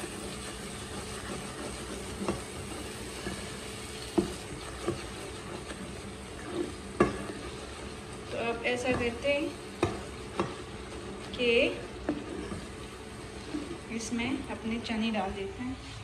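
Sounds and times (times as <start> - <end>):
masala sizzling in a pot: 0.0 - 16.0
spatula stirring: 0.0 - 16.0
spatula knocking against pan: 4.1 - 5.8, 6.9 - 7.5, 8.8 - 10.7.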